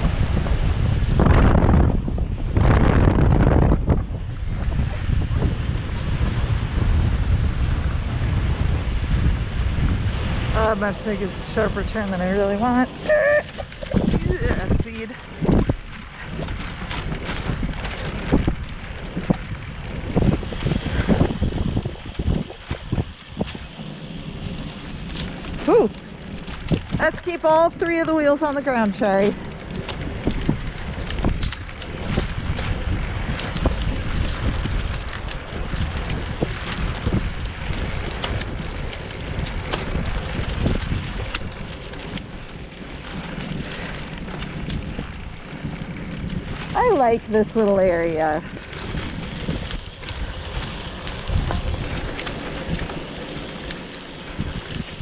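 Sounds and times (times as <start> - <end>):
wind buffeting microphone: 0.0 - 55.0
bicycle knocks and rattles: 13.4 - 55.0
high steady ringing tone: 31.1 - 32.2, 34.6 - 35.8, 38.4 - 39.5, 41.3 - 43.1, 48.7 - 50.0, 52.1 - 54.7.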